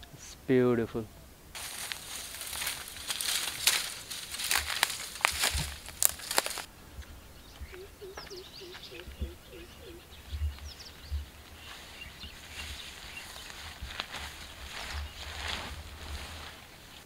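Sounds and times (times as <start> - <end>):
footsteps on dry grass and brush: 1.6 - 6.7, 7.5 - 17.0
faint high bird chirps: 7.0 - 13.4.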